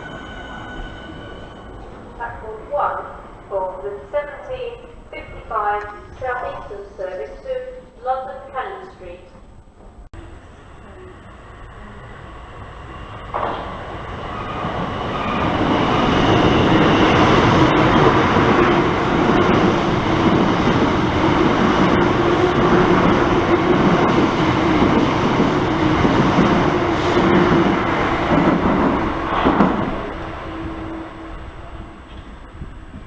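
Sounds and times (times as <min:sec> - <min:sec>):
train wheels rumbling on rail: 0:09.8 - 0:33.0.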